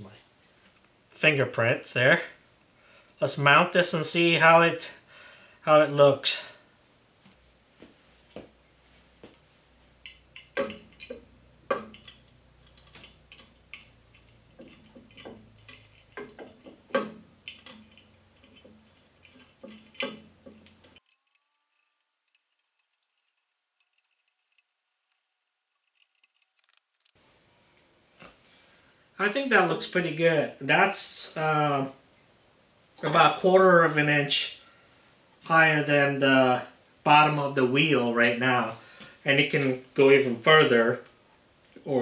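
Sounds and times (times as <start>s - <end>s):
metal parts clicking and clinking: 10.0s - 27.1s.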